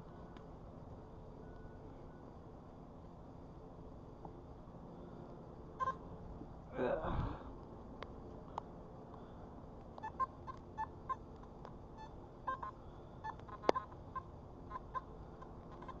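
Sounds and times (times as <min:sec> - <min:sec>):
metal detector beeps: 0:10.0 - 0:11.2, 0:12.0 - 0:15.1.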